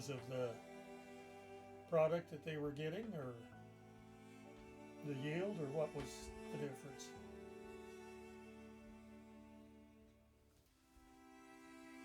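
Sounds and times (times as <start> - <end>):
held string notes: 0.0 - 12.0.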